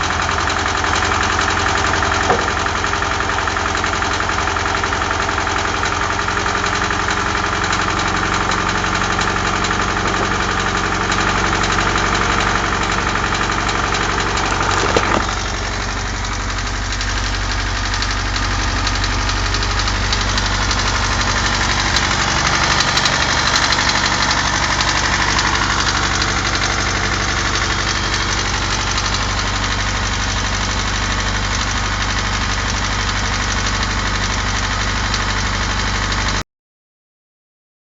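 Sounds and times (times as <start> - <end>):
car engine knocking: 0.0 - 36.4.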